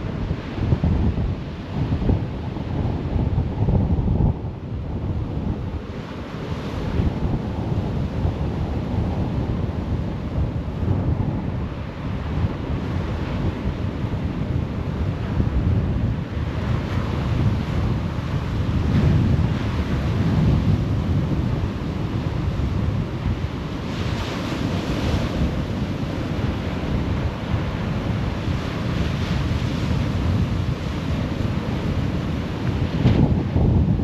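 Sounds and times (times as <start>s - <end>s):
wind buffeting microphone: 0.0s - 34.0s
sea surf breaking on beach: 5.2s - 34.0s.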